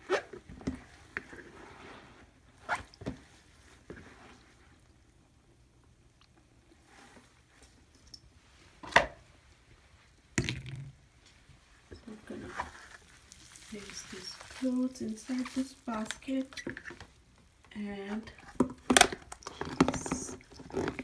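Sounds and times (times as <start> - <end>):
wet clothes squishing: 12.1 - 17.6.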